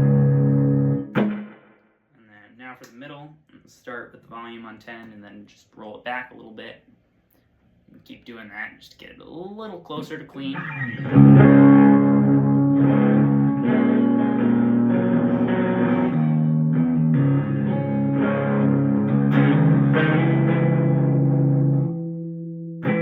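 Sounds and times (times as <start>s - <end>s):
electric guitar playing sustained chords: 0.0s - 1.5s, 10.6s - 23.0s.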